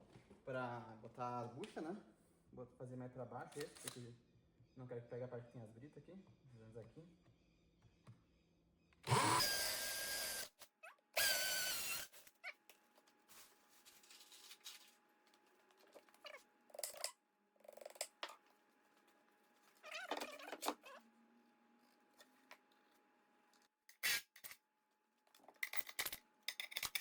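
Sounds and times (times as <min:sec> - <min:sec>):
electric drill boring into concrete: 0:09.1 - 0:10.5, 0:11.2 - 0:12.2.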